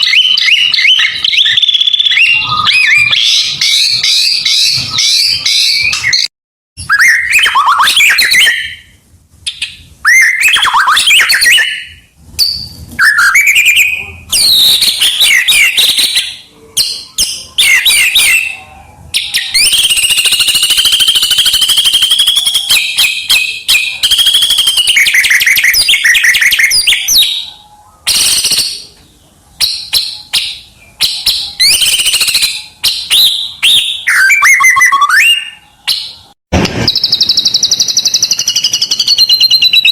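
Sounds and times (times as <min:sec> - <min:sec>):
bird rasping trill: 0:00.0 - 0:08.9
songbird singing whistled phrases: 0:00.0 - 0:39.9.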